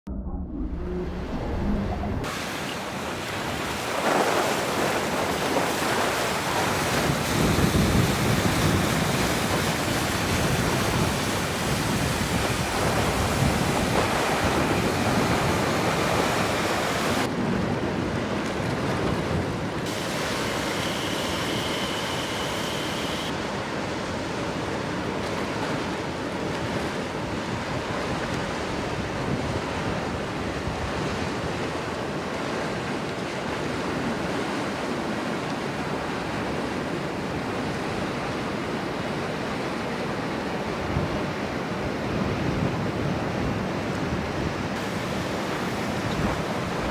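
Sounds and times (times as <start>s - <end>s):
wind buffeting microphone: 0.1s - 19.9s, 42.2s - 46.9s
moving river water: 0.9s - 46.9s.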